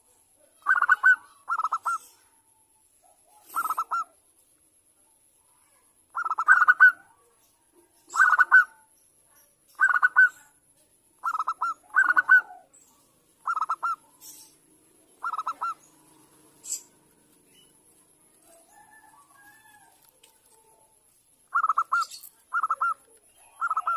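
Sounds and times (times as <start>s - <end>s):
dove cooing: 0.5s - 2.4s, 3.3s - 4.2s, 6.1s - 7.2s, 8.1s - 8.8s, 9.8s - 10.4s, 11.2s - 12.8s, 13.4s - 17.1s, 21.5s - 23.9s.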